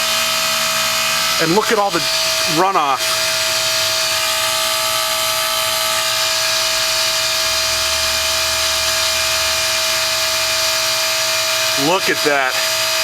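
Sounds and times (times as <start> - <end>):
heat pump mechanical whine: 0.0 - 13.0.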